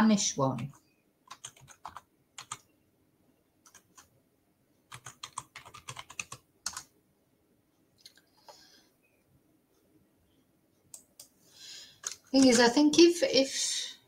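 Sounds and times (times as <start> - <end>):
keyboard typing clicks: 0.6 - 2.7, 3.6 - 4.1, 4.9 - 6.9, 12.0 - 12.7.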